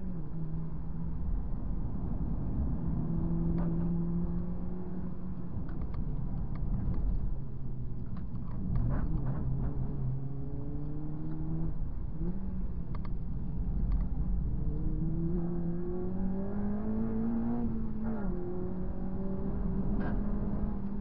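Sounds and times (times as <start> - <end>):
car engine accelerating: 0.0 - 7.3, 8.2 - 21.0.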